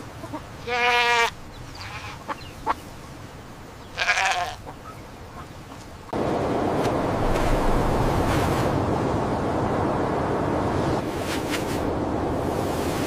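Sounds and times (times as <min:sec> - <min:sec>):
lamb bleating: 0:00.6 - 0:02.2, 0:04.0 - 0:04.6.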